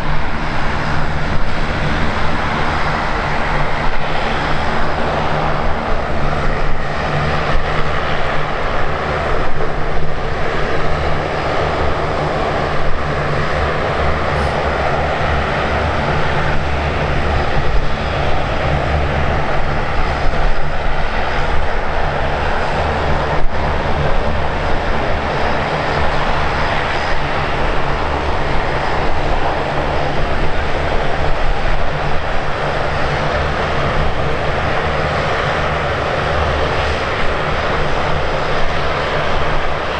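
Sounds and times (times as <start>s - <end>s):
airliner engines roaring: 0.0s - 39.9s
steady low hum: 13.8s - 17.9s.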